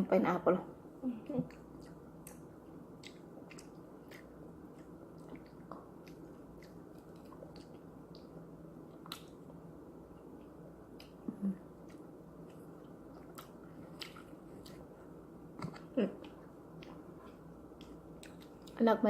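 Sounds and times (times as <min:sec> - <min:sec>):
wet chewing of pineapple: 0:03.0 - 0:09.6, 0:10.4 - 0:18.8.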